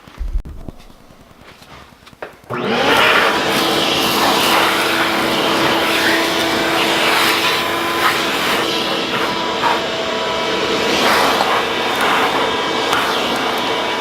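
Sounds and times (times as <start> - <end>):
electric drill whining: 2.5 - 14.0.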